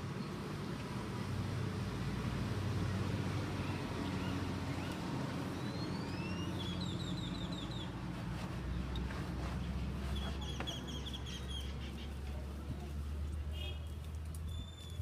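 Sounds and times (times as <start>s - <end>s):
engine rumbling: 0.0s - 15.0s
open-air ambience: 0.0s - 15.0s
bird whistling and chirping: 5.6s - 7.9s.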